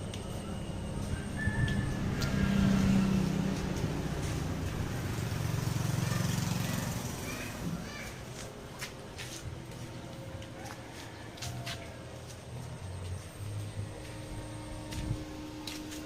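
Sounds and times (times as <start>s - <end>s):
engine rumbling: 0.0s - 16.0s.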